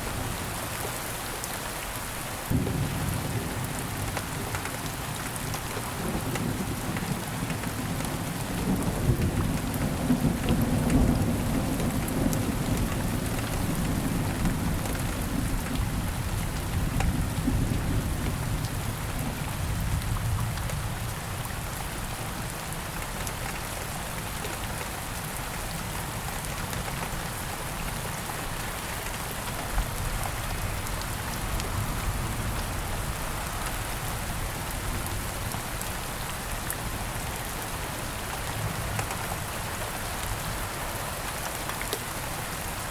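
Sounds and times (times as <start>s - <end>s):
steady rain falling: 0.0s - 42.9s
low rumble of thunder: 2.5s - 21.7s.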